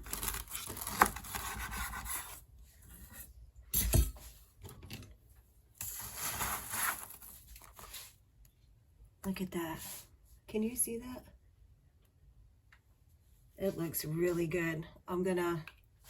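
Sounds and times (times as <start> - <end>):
knife sawing through bread crust: 0.1 - 2.4.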